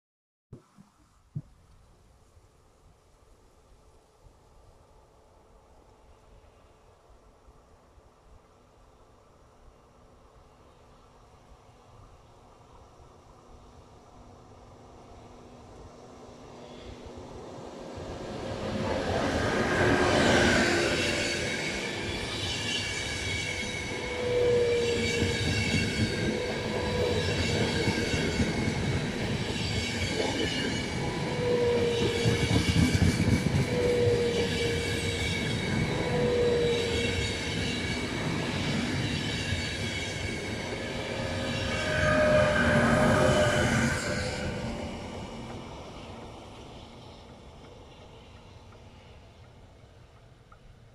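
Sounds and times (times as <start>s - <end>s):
train wheels rumbling on rails: 14.8s - 50.9s.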